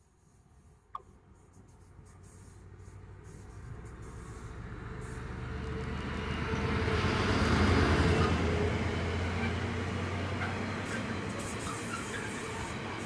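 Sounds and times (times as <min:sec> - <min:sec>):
diesel locomotive running under power: 0:03.0 - 0:13.0
freight wagons rumbling on rails: 0:03.6 - 0:13.0.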